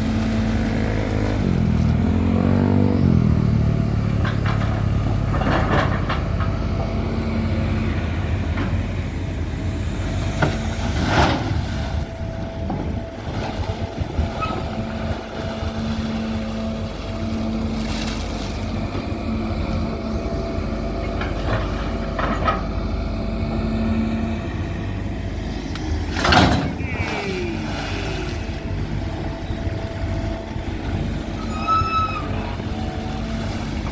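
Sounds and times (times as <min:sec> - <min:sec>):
excavator diesel engine running: 0:00.0 - 0:33.9
short knocks and clatters: 0:04.1 - 0:06.6.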